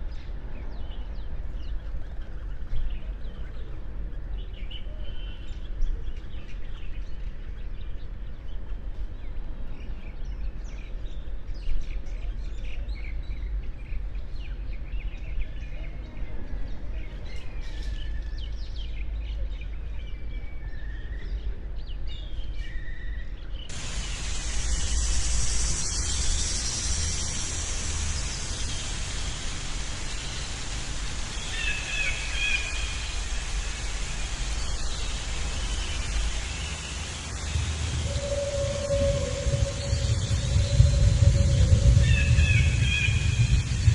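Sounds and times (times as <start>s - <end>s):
loud steady hiss: 23.7s - 43.9s
low rumble: 23.7s - 43.9s
small birds chirping: 23.7s - 43.9s.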